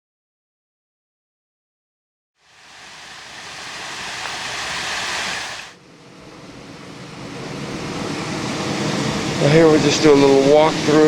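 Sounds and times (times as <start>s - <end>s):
waterfall splashing into pool: 2.4s - 5.8s.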